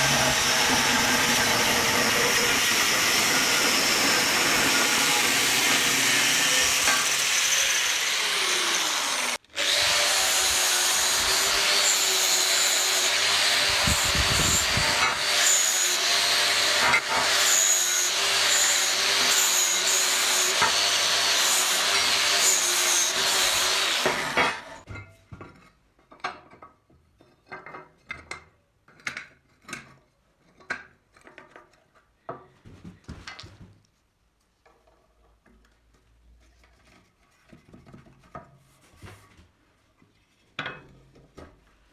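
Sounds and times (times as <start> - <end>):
angle grinder on metal: 0.0 - 24.8.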